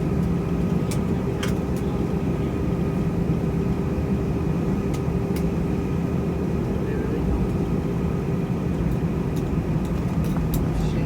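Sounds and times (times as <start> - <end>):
airliner engines droning: 0.0 - 11.0.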